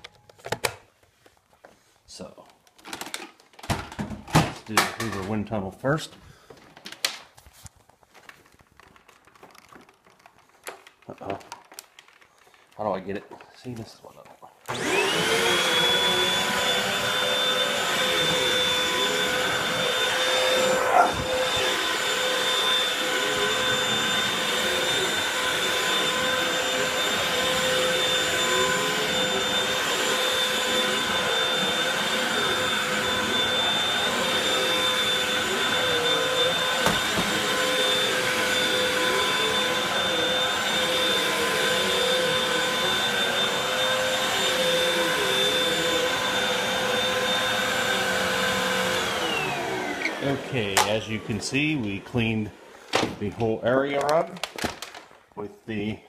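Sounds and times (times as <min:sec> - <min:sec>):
vacuum cleaner whining: 0:02.8 - 0:05.5, 0:14.6 - 0:56.0.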